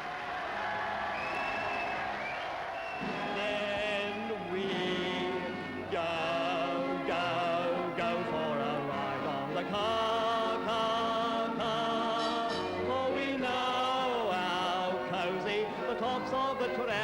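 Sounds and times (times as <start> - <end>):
person singing with vibrato: 3.4 - 17.0
instrumental accompaniment: 4.8 - 17.0.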